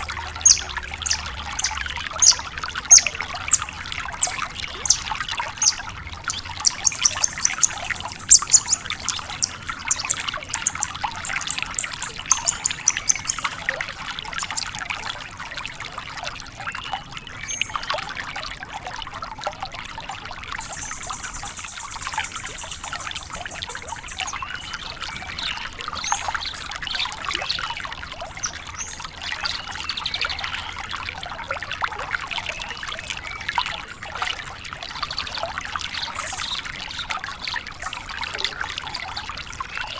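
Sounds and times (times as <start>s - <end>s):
lark singing chattering song: 0.4s - 13.7s, 20.6s - 25.5s, 36.1s - 36.6s.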